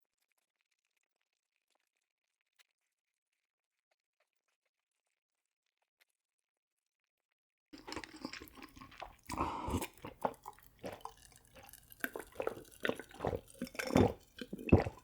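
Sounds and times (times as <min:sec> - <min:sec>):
chewing and mouth smacks: 0:07.8 - 0:15.0.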